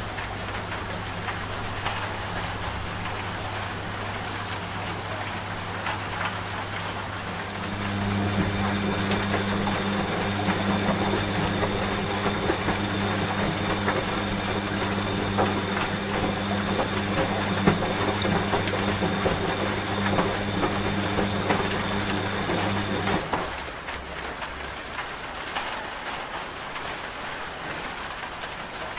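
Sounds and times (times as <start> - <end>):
washing machine hum: 0.0 - 24.2
rain patter: 0.0 - 28.9.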